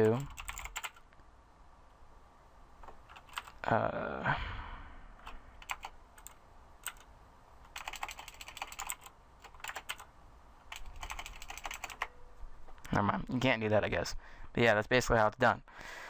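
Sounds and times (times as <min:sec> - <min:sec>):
keyboard typing: 0:00.0 - 0:01.2, 0:02.8 - 0:03.6, 0:05.2 - 0:12.2.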